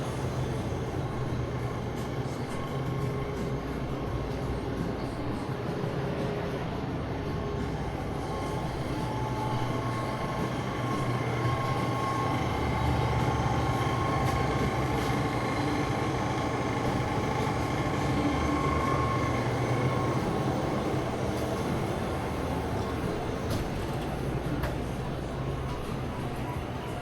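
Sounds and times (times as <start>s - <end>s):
low mechanical hum: 0.0s - 27.0s
faint high whines: 7.4s - 23.4s.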